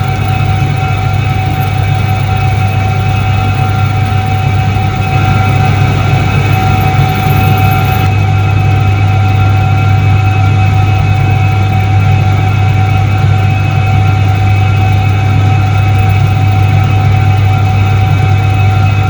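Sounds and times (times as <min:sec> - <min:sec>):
washing machine motor humming: 0:00.0 - 0:09.4.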